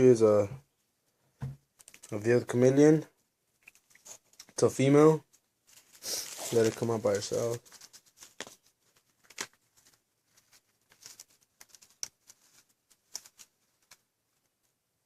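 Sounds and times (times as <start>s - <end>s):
packing rustling: 5.7s - 14.0s.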